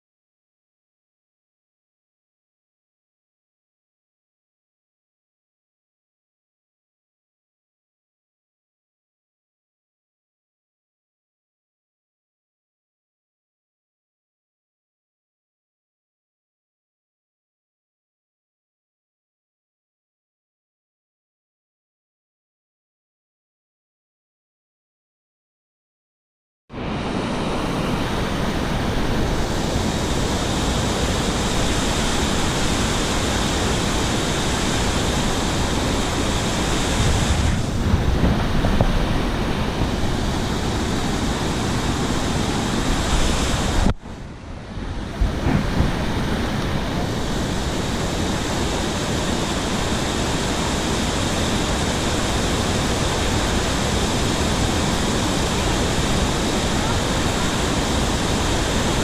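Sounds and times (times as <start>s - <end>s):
waterfall rushing: 26.8s - 59.0s.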